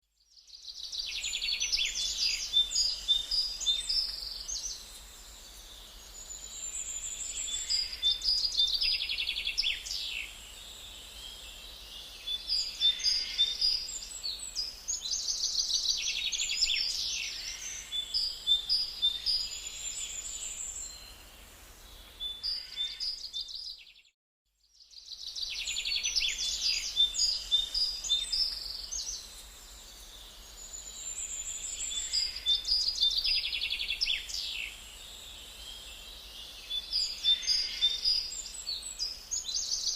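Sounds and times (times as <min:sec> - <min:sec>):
finch chirps and trills: 0:35.6 - 0:39.9.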